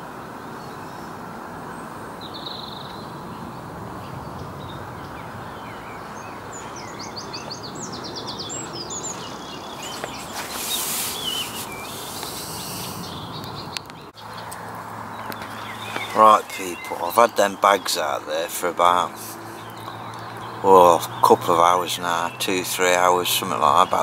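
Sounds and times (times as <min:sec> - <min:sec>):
steady outdoor noise: 0:00.0 - 0:24.0
small birds chirping and singing: 0:00.4 - 0:24.0
loud rushing noise: 0:07.7 - 0:13.4.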